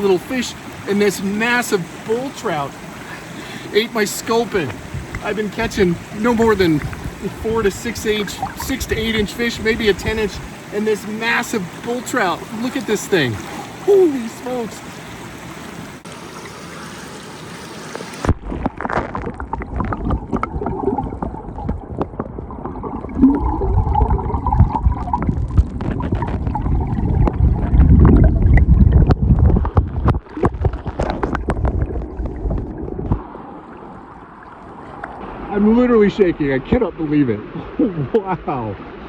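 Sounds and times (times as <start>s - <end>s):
creek rushing: 0.0s - 19.0s
water sloshing and gurgling: 0.0s - 39.0s
low rumble: 18.3s - 37.0s.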